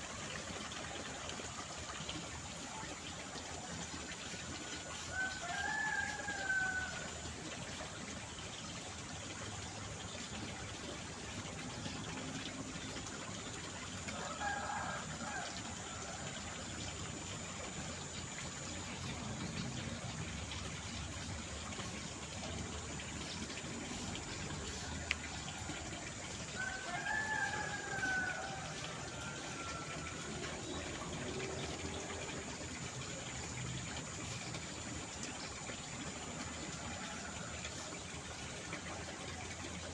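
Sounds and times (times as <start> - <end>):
running water: 0.0 - 39.9
roosters crowing: 26.5 - 30.2.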